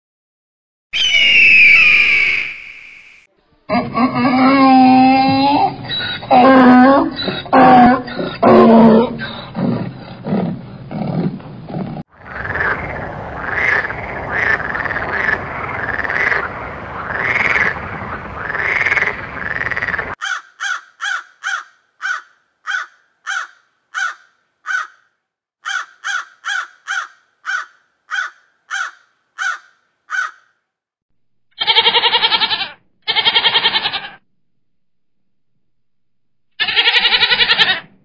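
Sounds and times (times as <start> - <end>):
repeated animal call: 3.7 - 11.2, 31.5 - 34.2, 36.5 - 38.0
crows cawing: 12.3 - 30.6
goat bleats: 31.6 - 34.2, 36.6 - 37.9.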